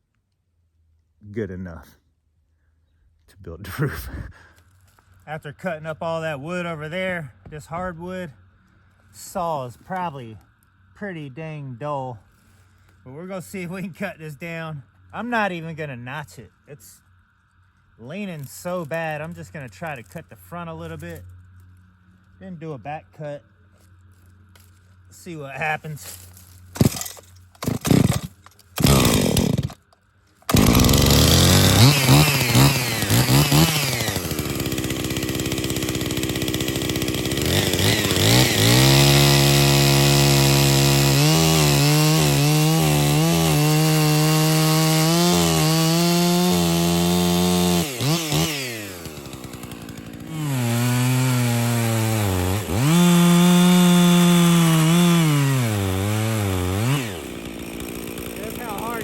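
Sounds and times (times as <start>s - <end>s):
chainsaw cutting wood: 23.8s - 59.0s.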